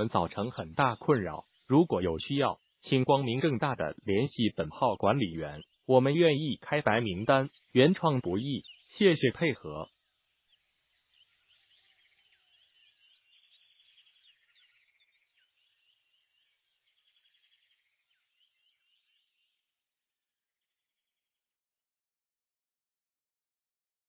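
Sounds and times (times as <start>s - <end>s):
insect trills: 0.0s - 19.3s
faint bird chirps: 0.0s - 19.9s.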